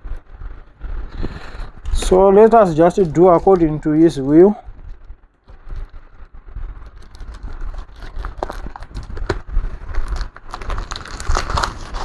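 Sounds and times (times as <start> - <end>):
tape pulled off plastic crackling: 6.7 - 12.0.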